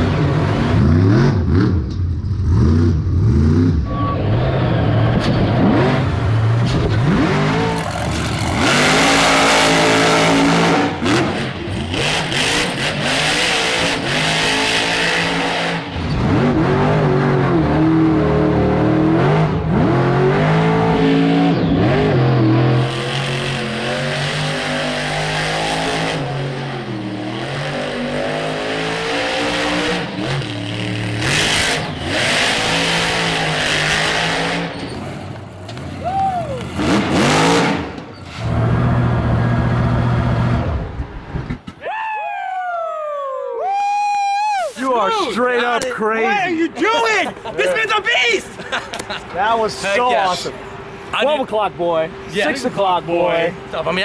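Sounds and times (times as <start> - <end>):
monster truck engine revving: 0.0 - 41.6.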